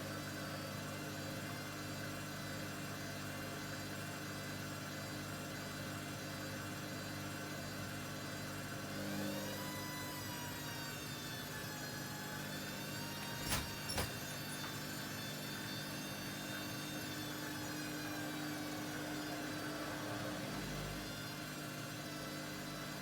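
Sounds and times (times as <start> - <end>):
washing machine motor whining: 8.8 - 23.0.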